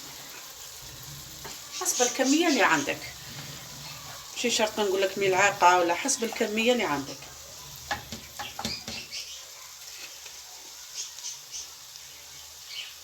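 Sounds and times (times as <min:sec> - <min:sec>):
utensil clicking in frying pan: 0:07.8 - 0:09.2
faint high chirps: 0:08.4 - 0:13.0.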